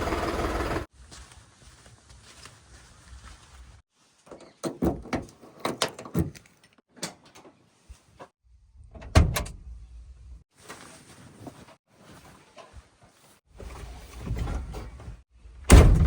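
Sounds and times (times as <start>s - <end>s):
heavy knocks and thuds: 15.7s - 16.0s.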